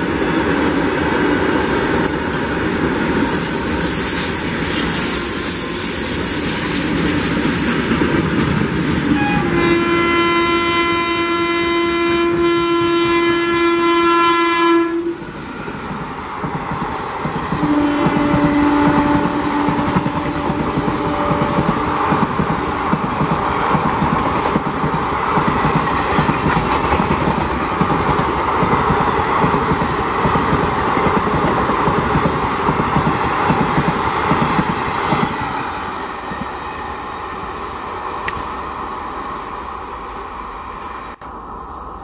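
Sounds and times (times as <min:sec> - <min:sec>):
train horn: 0:09.1 - 0:15.4, 0:17.6 - 0:22.1.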